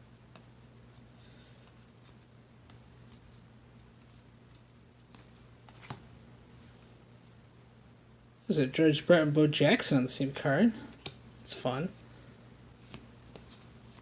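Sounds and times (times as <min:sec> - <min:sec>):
steady low hum: 0:00.0 - 0:14.0
cards rustling and clicking: 0:00.3 - 0:07.4, 0:12.8 - 0:14.0.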